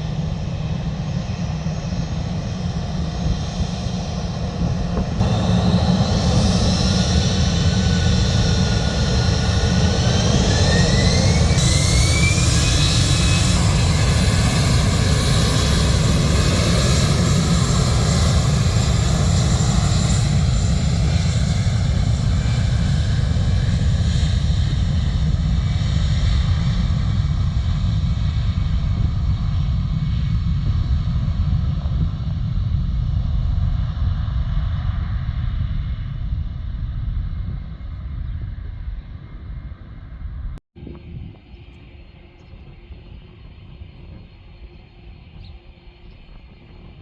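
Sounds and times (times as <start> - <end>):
rising engine whine: 0.0 - 27.6
jet engines running: 0.0 - 47.0.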